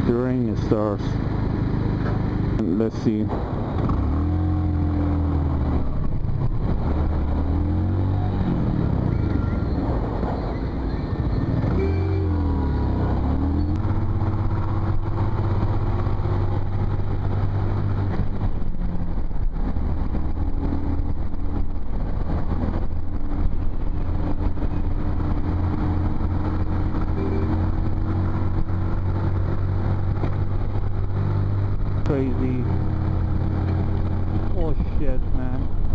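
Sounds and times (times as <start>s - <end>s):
motorcycle engine droning: 0.0s - 18.5s, 22.8s - 34.8s.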